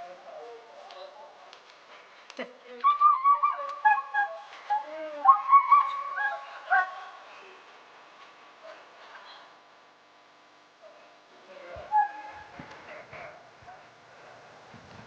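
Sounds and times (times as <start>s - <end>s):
dogs whining and yelping: 2.8s - 6.9s.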